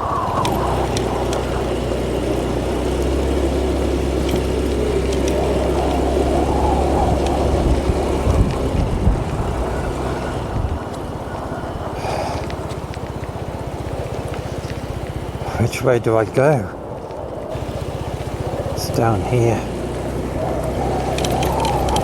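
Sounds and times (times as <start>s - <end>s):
wind noise on microphone: 0.0s - 14.2s, 16.7s - 22.0s
motorbike engine running: 0.0s - 22.0s.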